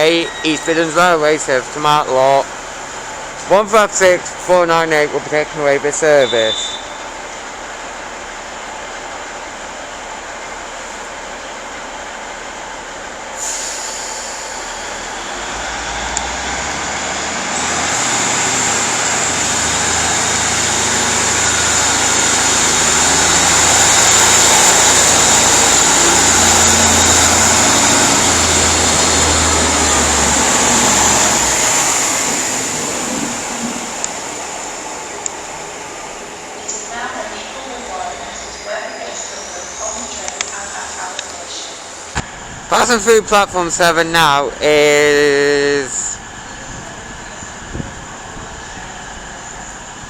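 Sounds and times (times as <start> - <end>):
diesel train engines under power: 0.0 - 50.0
steady high whine: 21.2 - 50.0.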